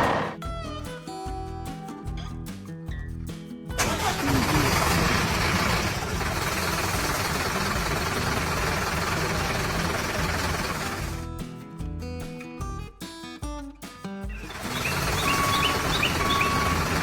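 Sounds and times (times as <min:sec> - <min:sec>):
machine engine running: 0:03.8 - 0:11.2, 0:14.4 - 0:17.0.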